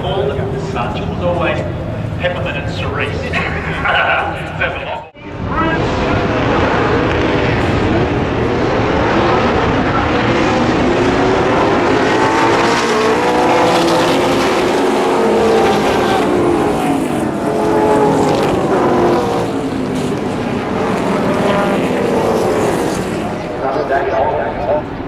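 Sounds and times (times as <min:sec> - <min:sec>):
racing car engines passing: 0:00.0 - 0:25.0.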